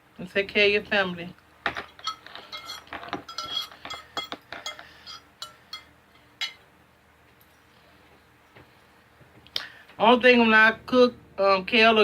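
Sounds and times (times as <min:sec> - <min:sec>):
utensil clinking on a plate: 0:01.7 - 0:06.6.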